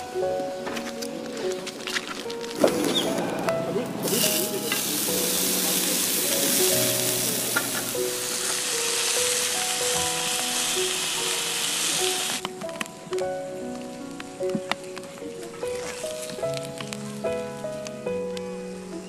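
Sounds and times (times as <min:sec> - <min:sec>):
background music: 0:00.0 - 0:19.0
food sizzling in a hot pan: 0:04.0 - 0:12.6.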